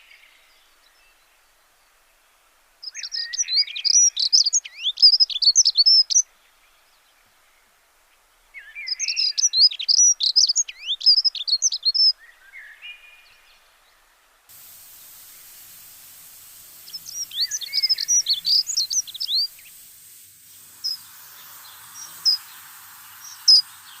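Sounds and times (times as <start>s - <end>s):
small birds chirping: 0.0s - 24.0s
steady hiss: 10.5s - 24.0s.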